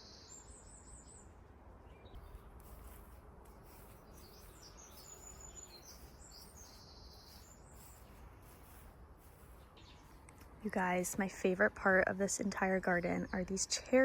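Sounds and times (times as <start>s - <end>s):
birds chirping and trilling: 0.0s - 2.5s, 3.8s - 8.8s, 10.9s - 14.0s.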